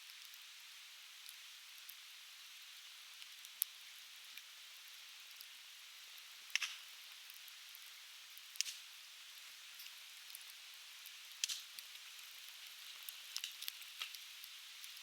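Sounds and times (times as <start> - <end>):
firewood burning and crackling: 3.2 - 15.0
sharp pops of burning wood: 6.5 - 6.9, 8.6 - 8.8, 11.3 - 11.9, 12.7 - 14.2.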